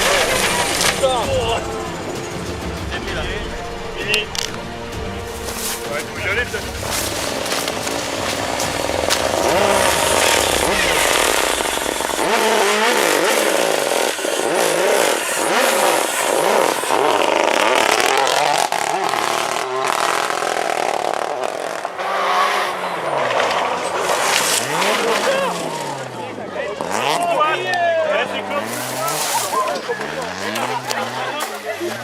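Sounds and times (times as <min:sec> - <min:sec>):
car engine revving hard: 0:06.6 - 0:31.3.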